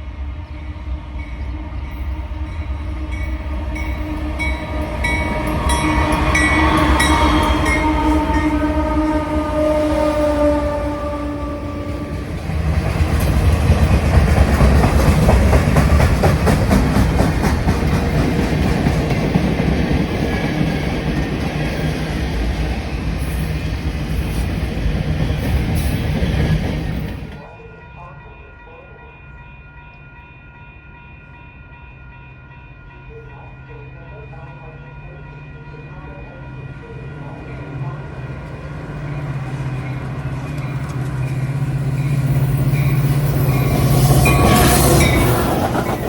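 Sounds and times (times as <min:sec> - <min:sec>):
train horn: 0:00.0 - 0:13.6, 0:40.6 - 0:46.0
train wheels clickety-clack: 0:12.0 - 0:27.5, 0:40.0 - 0:46.0.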